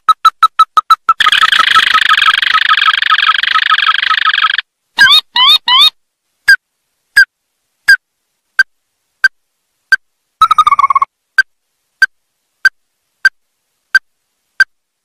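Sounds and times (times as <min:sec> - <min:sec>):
bird calling sharp notes: 0:00.0 - 0:06.0
bird trill: 0:01.0 - 0:06.0.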